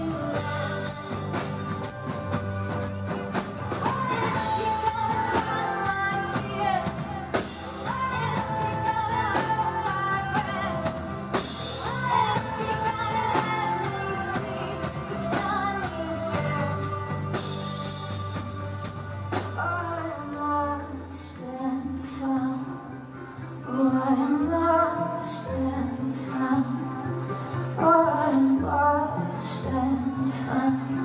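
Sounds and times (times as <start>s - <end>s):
steady drum beat: 0.0s - 19.8s
live pop-rock band: 0.0s - 31.0s.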